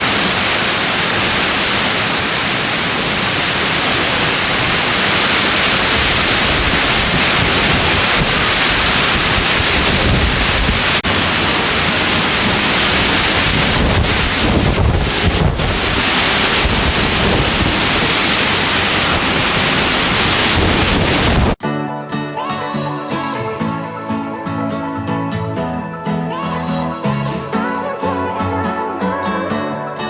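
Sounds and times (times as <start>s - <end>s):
wind buffeting microphone: 4.2s - 21.6s.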